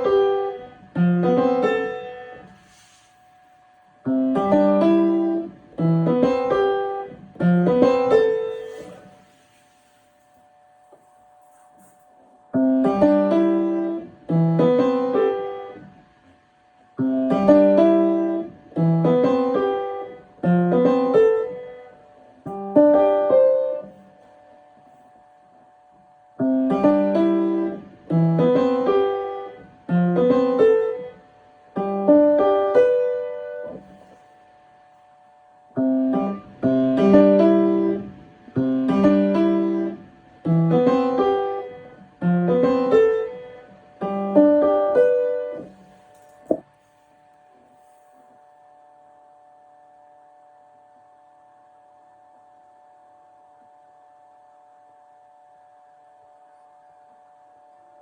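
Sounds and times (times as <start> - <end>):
piano notes and chords: 0.0 - 16.0, 17.0 - 25.0, 26.4 - 34.2, 35.7 - 46.8.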